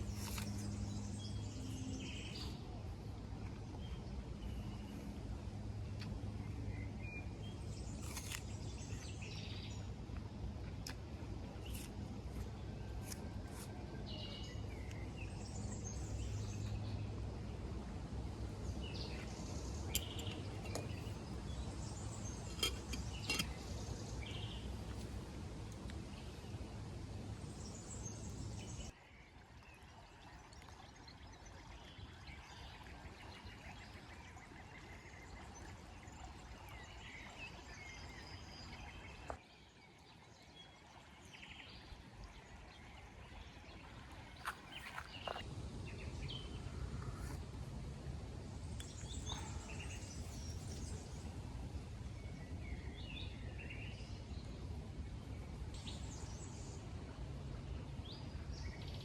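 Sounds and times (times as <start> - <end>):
small birds chirping: 6.0 - 11.0, 18.6 - 25.1, 48.6 - 51.4.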